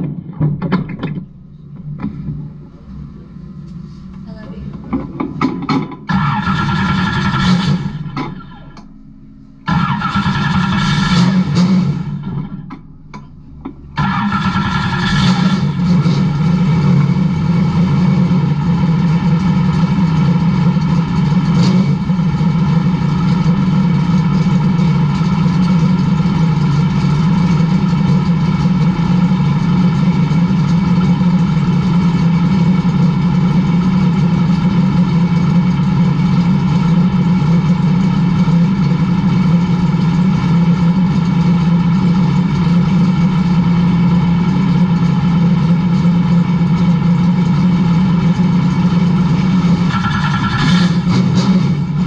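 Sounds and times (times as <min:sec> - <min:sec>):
race car engine idling: 0:00.0 - 0:52.0.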